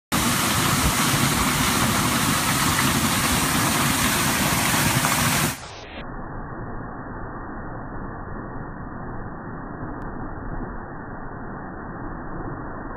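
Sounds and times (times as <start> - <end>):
waterfall rushing: 0.1 - 5.7.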